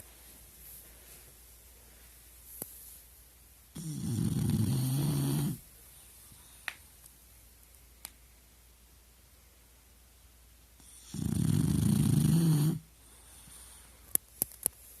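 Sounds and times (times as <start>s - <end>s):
dog snoring: 3.8s - 5.6s, 10.8s - 12.9s.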